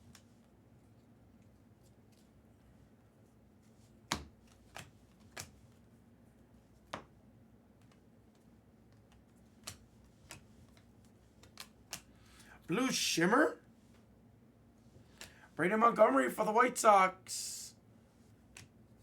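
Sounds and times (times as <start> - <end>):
trading cards clicking: 9.0 - 12.5.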